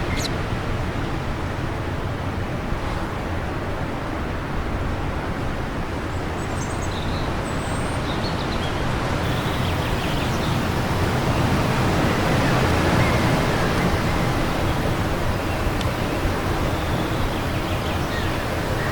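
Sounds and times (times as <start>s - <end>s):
faint bird chirps: 9.2s - 18.9s
wind blowing: 9.2s - 18.9s.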